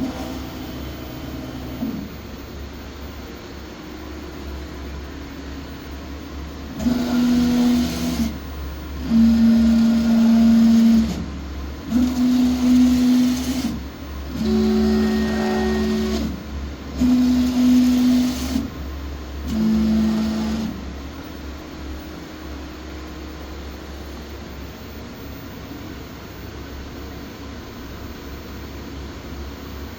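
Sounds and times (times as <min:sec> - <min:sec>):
machine axis drive droning: 0:05.7 - 0:24.2.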